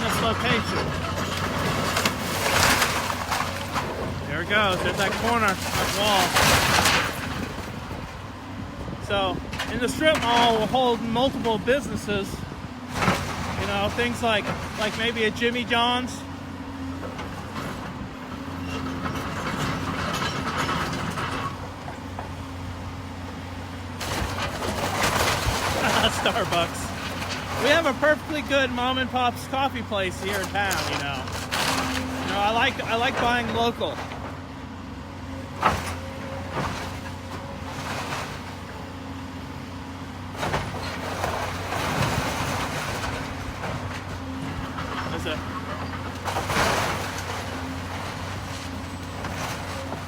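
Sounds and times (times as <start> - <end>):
bricks and debris clattering: 0.0 - 7.8, 24.0 - 34.3, 40.4 - 50.0
demolition machine running: 0.0 - 50.0.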